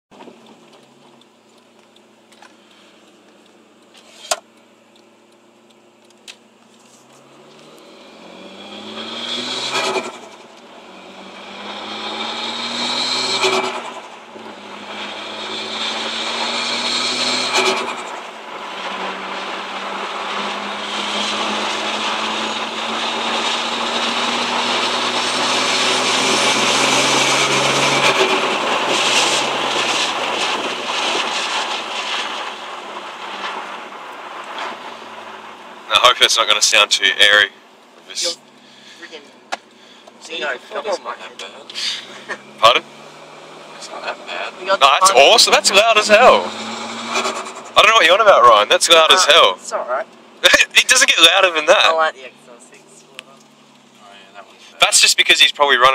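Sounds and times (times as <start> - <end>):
car engine accelerating: 0.1 - 55.9.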